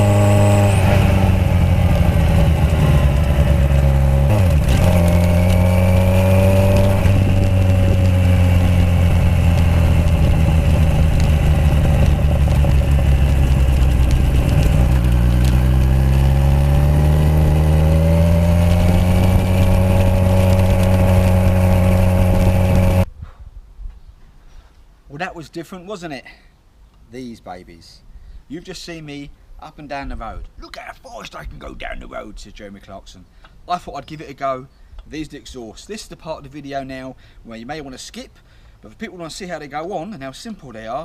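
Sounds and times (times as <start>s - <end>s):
motorcycle engine exhaust note: 0.0s - 23.1s.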